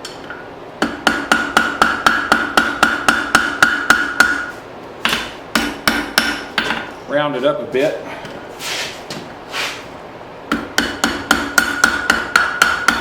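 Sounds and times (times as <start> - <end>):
hammer striking steel on anvil: 0.8 - 6.9, 10.5 - 13.0.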